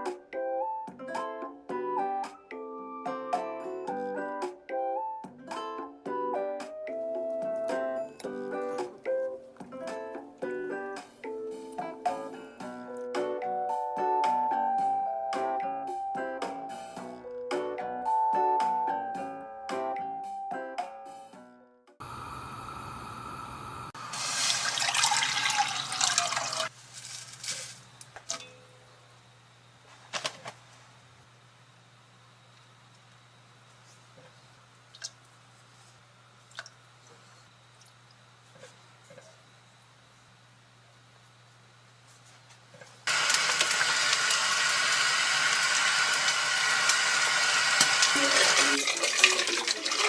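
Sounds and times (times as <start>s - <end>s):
water running: 22.0s - 26.7s, 43.1s - 50.0s.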